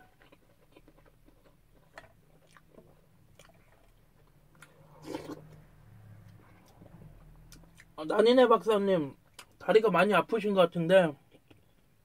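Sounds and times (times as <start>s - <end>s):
person chewing food: 0.0s - 8.0s, 9.2s - 9.6s.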